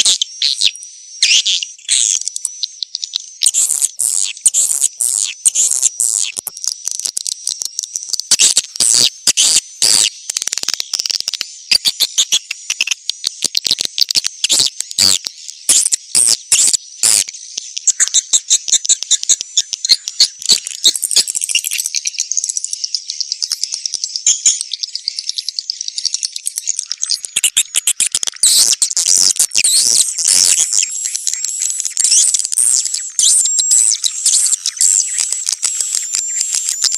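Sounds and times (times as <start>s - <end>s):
swiftlets twittering and chirping: 0.0s - 36.9s
sharp clicks: 4.5s - 21.7s, 26.1s - 36.9s.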